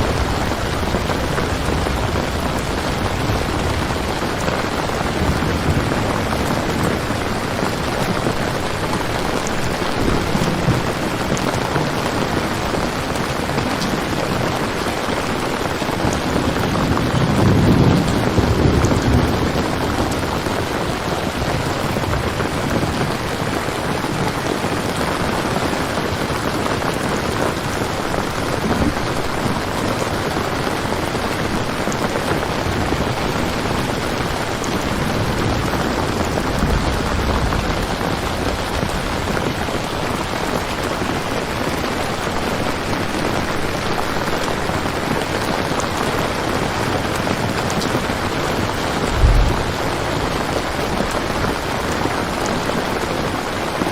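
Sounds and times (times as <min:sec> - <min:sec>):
steady rain falling: 0:00.0 - 0:53.9
low rumble: 0:49.0 - 0:50.5.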